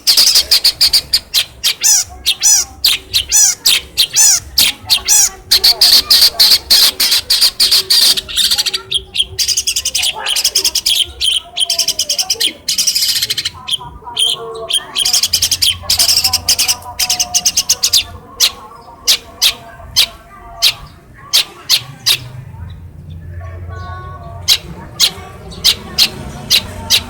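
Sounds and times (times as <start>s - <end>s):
shrike chattering song: 0.0s - 27.0s.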